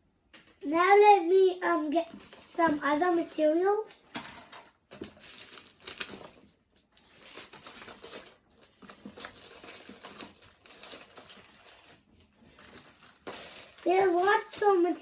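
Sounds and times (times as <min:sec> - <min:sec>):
plastic packaging crinkling: 0:04.9 - 0:15.0.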